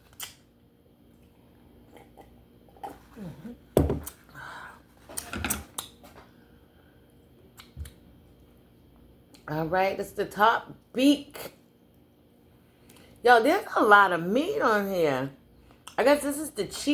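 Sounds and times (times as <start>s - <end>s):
chewing and mouth smacking: 7.5s - 8.6s.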